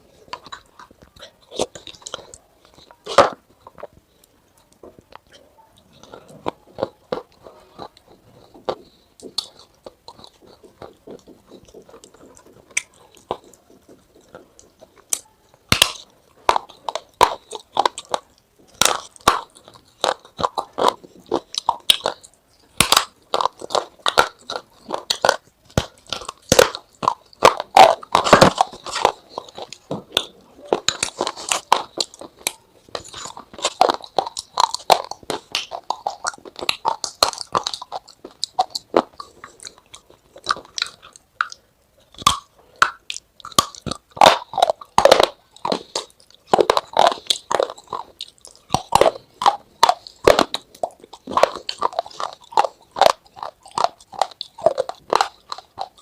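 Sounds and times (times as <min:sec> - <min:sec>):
crunchy food being chewed: 0:00.0 - 0:56.0.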